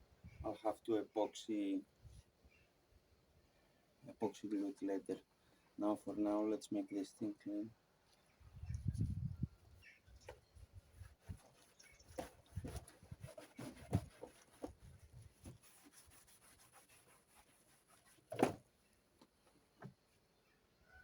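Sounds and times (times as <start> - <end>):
hand scrubbing plastic surface: 10.9 - 18.7.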